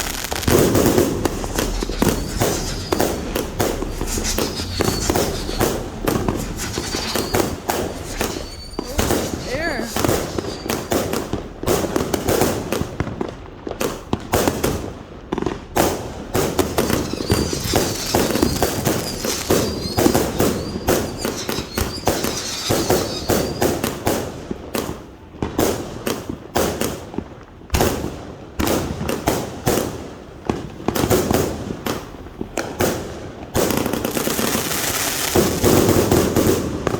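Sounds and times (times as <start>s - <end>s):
high wavering firework whistle: 0.0s - 12.0s, 16.4s - 24.3s
fireworks launching and bursting: 0.0s - 27.0s, 27.8s - 36.9s.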